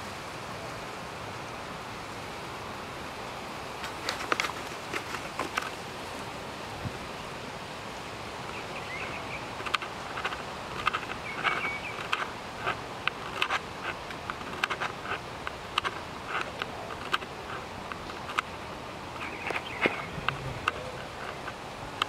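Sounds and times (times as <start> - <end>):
steady outdoor hiss: 0.0 - 22.0
birds chirping and clicking: 8.4 - 22.0
whistled bird calls: 8.5 - 9.6, 11.2 - 12.1, 19.2 - 21.5.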